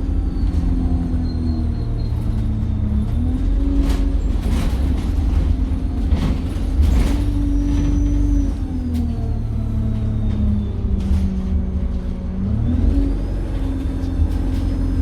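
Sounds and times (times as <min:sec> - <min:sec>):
bus engine running: 0:00.0 - 0:15.0
knocks and rattles: 0:03.8 - 0:08.0.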